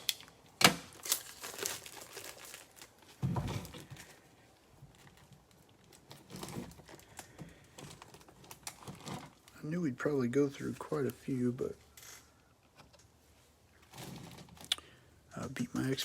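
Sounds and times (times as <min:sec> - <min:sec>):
plastic wrapping crinkling and tearing: 0:00.0 - 0:09.8.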